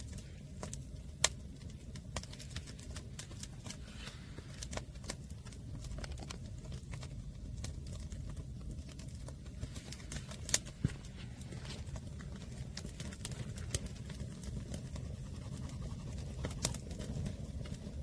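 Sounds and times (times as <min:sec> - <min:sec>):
fire low rumble: 0:00.0 - 0:18.0
wood fire crackling and popping: 0:00.0 - 0:18.0.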